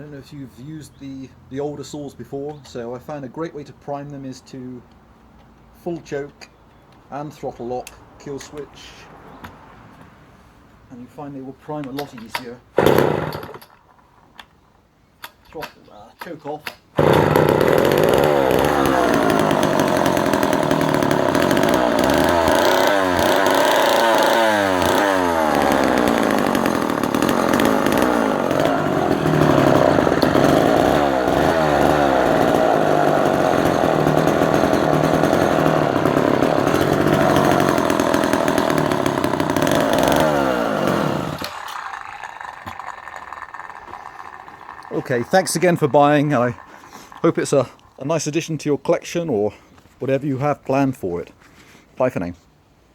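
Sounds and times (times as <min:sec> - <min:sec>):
chainsaw revving: 0:12.8 - 0:13.7, 0:17.0 - 0:47.8.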